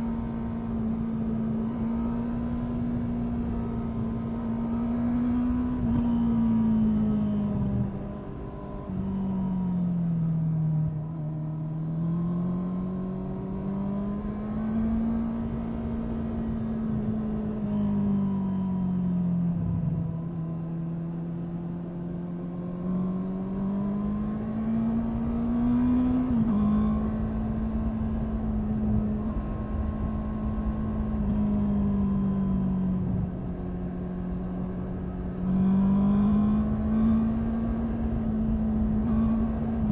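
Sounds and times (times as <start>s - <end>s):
motorcycle engine revving: 20.7s - 39.9s.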